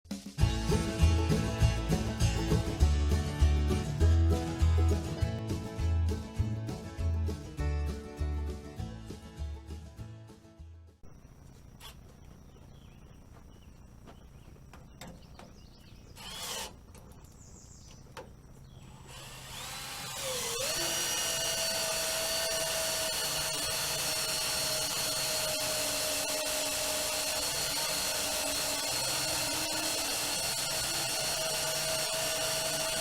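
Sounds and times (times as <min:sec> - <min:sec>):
power drill whining: 0:16.1 - 0:17.0, 0:18.9 - 0:33.0.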